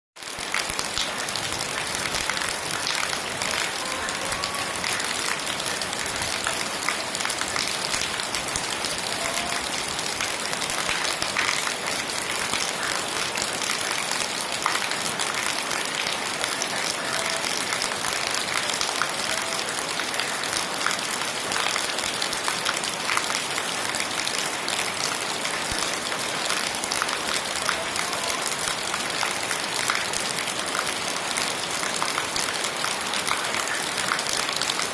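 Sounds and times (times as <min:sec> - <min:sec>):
heavy rain falling: 0:00.2 - 0:34.9.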